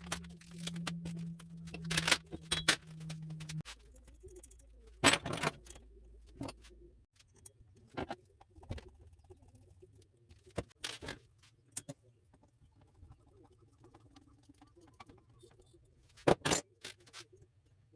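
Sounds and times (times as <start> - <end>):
metal parts clinking: 0.0 - 5.8.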